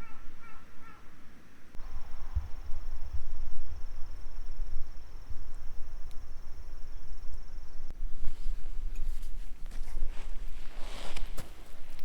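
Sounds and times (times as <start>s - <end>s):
cricket trilling: 1.8s - 7.9s
low microphone rumble: 1.8s - 8.8s
rustling: 8.2s - 12.0s.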